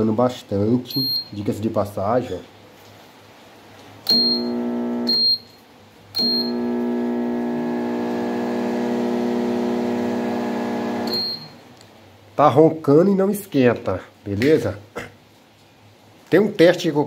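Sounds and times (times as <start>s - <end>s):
microwave beeps: 0.9s - 1.4s, 4.1s - 5.6s, 6.2s - 11.6s
microwave oven humming: 4.0s - 5.5s, 6.2s - 11.6s.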